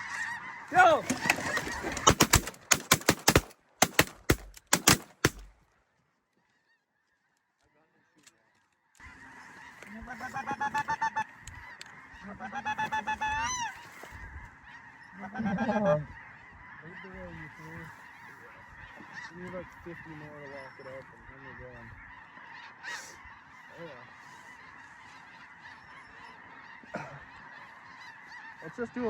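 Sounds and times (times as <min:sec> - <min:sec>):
geese honking: 0:00.0 - 0:05.6, 0:08.1 - 0:29.0
shotgun blasts: 0:01.1 - 0:05.6.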